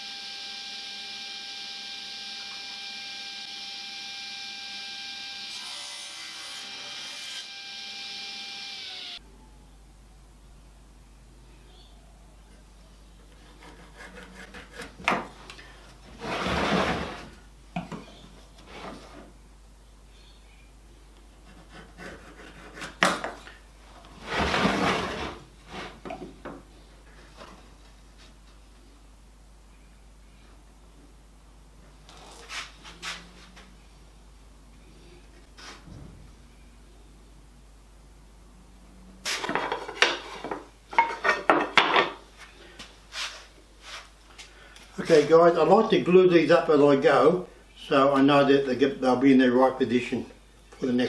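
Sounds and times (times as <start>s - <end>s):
timber scraping slide: 16.1s - 17.4s, 24.1s - 26.0s, 32.1s - 33.6s.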